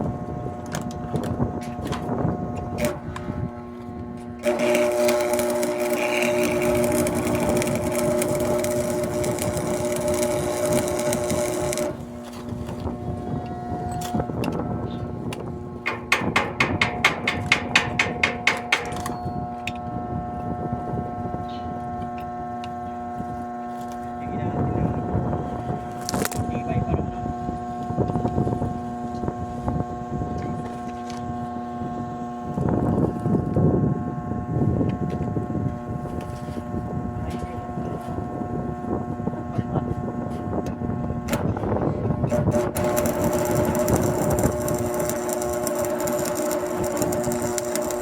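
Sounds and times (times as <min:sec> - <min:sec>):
wind buffeting microphone: 0:00.0 - 0:04.5, 0:06.4 - 0:23.4, 0:24.2 - 0:48.0
steady multi-tone hum: 0:00.0 - 0:48.0
hammer striking metal: 0:15.8 - 0:19.2.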